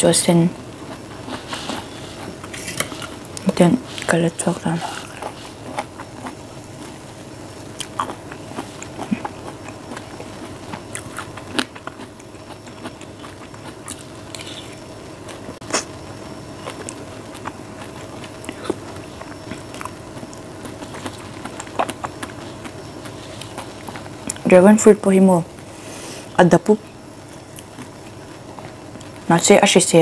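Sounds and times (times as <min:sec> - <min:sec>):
steady hum: 0:00.0 - 0:30.0
close chewing: 0:00.8 - 0:15.9, 0:16.6 - 0:24.5.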